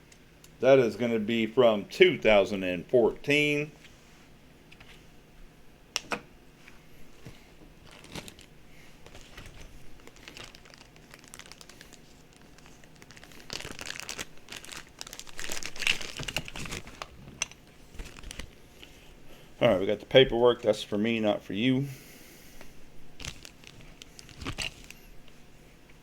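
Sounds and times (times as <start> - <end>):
packaging crinkling: 7.2 - 18.9, 23.2 - 25.4.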